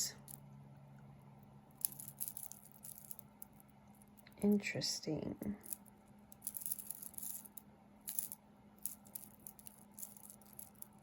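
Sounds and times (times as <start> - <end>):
glass beads clicking: 1.7 - 4.4, 5.6 - 11.0.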